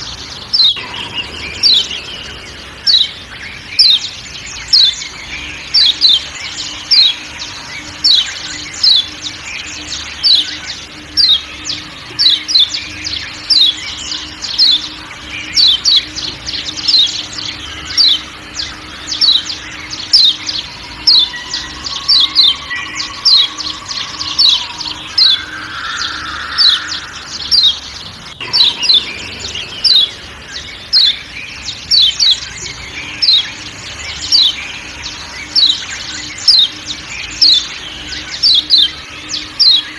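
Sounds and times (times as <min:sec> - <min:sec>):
faint forest background: 0:00.0 - 0:39.9
bird giving sharp chirps: 0:00.6 - 0:32.4.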